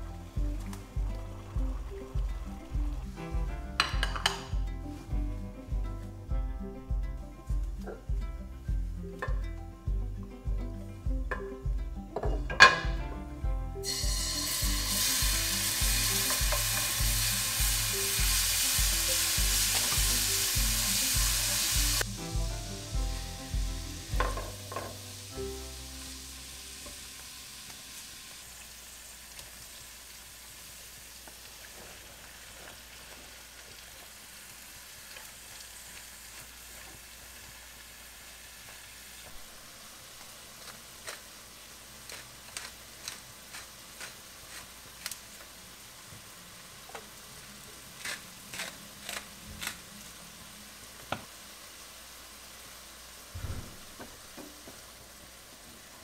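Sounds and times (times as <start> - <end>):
food sizzling in frying pan: 0.0 - 9.4, 13.8 - 56.0
spatula knocking in pan: 3.8 - 4.7, 23.6 - 25.0.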